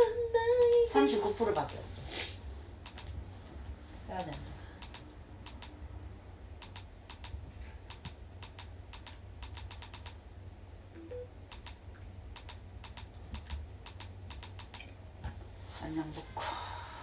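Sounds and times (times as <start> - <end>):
typing on computer keyboard: 4.2 - 5.7, 6.6 - 10.2, 11.5 - 11.8, 12.4 - 14.8.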